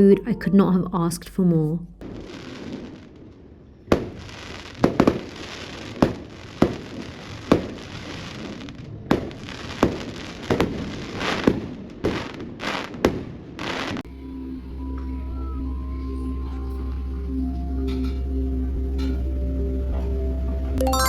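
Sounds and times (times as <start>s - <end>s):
fireworks crackling: 2.0s - 3.2s, 3.9s - 14.0s
firecracker bangs: 3.9s - 7.8s.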